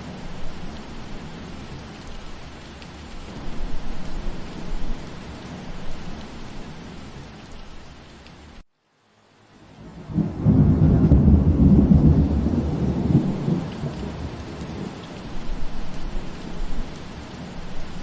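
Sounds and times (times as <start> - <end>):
steady rain: 0.0 - 18.0
thunder rumbling: 9.8 - 18.0.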